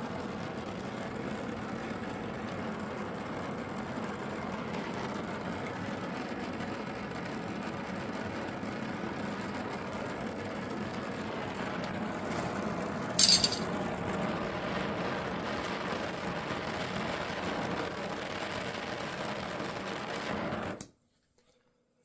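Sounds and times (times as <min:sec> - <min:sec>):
gas torch burning: 0:00.0 - 0:21.0
short sharp metal clink: 0:13.2 - 0:13.6.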